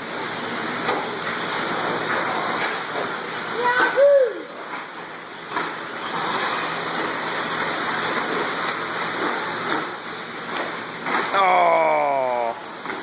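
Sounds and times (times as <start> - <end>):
faint motor whine: 0.0 - 13.0
toy truck motors and tyres rushing: 5.6 - 11.4.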